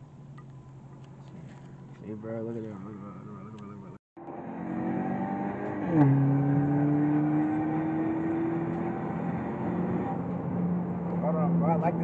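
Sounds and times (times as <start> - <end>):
car engine accelerating: 2.8 - 12.0.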